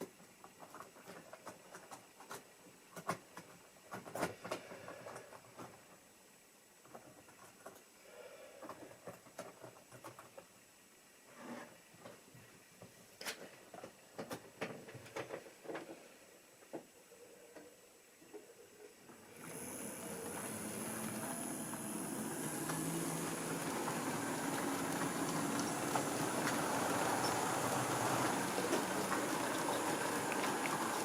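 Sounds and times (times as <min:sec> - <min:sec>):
model train wheels on rails: 0:19.1 - 0:31.0
high motor whine: 0:19.4 - 0:31.0.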